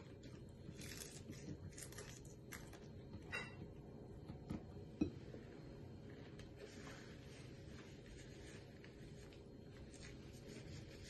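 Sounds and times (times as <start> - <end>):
chewing crispy fried chicken: 0.1 - 2.9.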